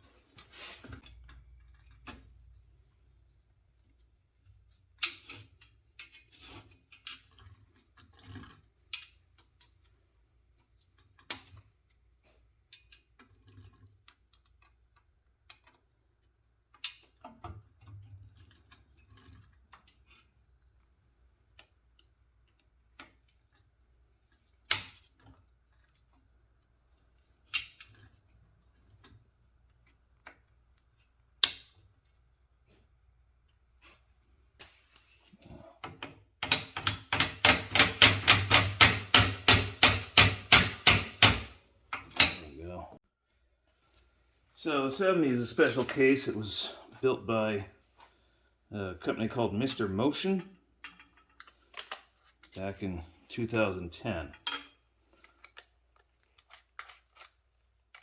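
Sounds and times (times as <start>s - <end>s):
hand tools and metal hardware clinking: 53.3s - 58.0s.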